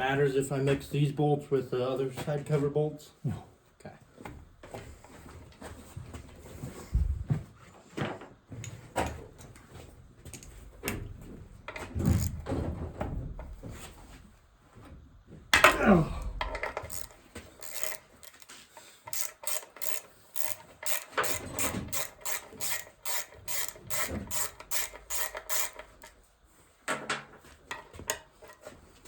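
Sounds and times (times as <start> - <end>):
ratchet wrench clicking: 12.0 - 12.4, 16.4 - 26.2.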